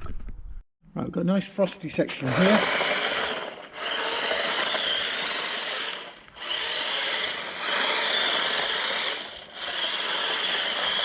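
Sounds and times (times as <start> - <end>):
electric motor whining: 2.2 - 11.0.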